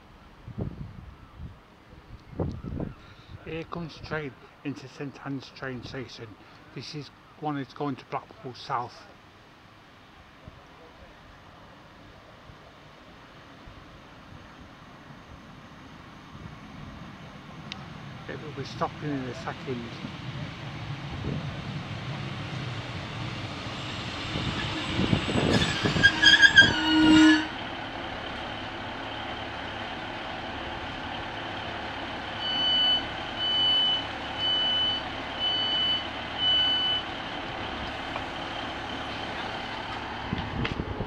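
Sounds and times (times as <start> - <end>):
diesel train running and idling: 8.2 - 41.0
brakes squealing: 17.7 - 40.6
door alarm beeps: 32.4 - 37.1.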